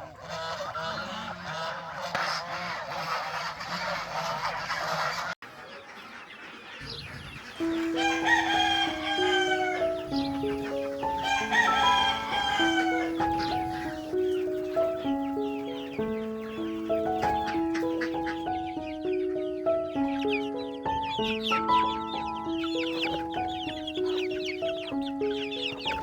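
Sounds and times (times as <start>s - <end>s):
chickens calling: 0.0s - 26.0s
simple melody of held notes: 7.6s - 26.0s.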